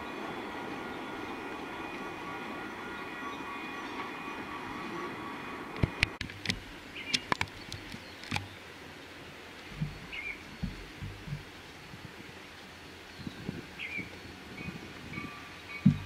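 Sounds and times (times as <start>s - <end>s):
train rumble with ringing tones: 0.0s - 6.2s, 15.0s - 16.0s
sharp clicks and knocks: 5.8s - 8.5s.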